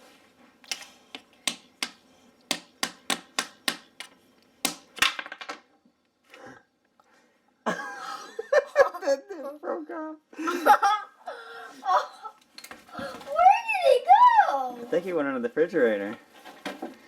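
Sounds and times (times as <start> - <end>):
hammer striking chisel into plaster: 1.4 - 5.1.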